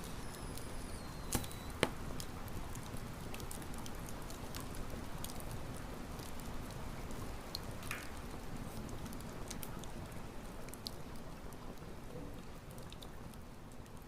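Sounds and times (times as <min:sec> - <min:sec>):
campfire crackling and popping: 0:00.0 - 0:10.0.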